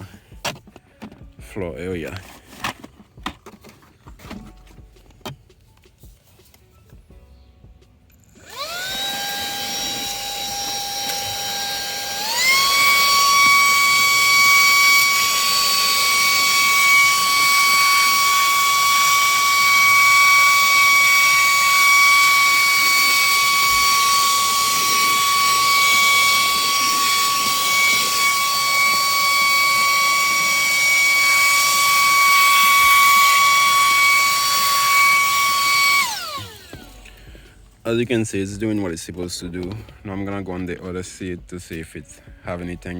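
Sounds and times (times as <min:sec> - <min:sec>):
handheld vacuum motor whine: 0:08.2 - 0:37.5.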